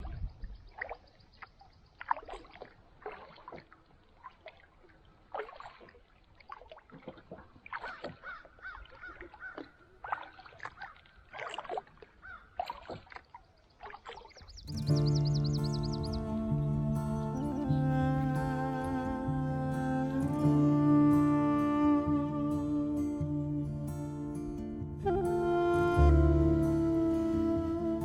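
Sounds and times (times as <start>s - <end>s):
paddle dipping in water: 0.0s - 20.0s
water trickling and dripping: 0.0s - 20.4s
birds calling: 12.2s - 12.6s, 13.3s - 19.1s
wavy bird call: 14.7s - 28.0s.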